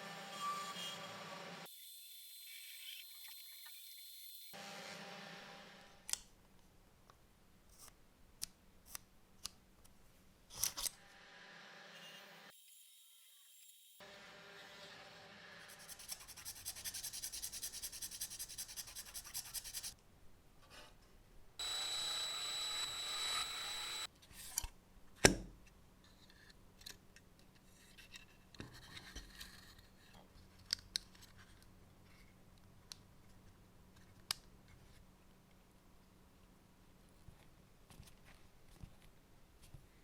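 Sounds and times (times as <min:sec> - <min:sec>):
rapid rasping strokes: 0:15.7 - 0:20.0
steady high whir: 0:21.6 - 0:24.1.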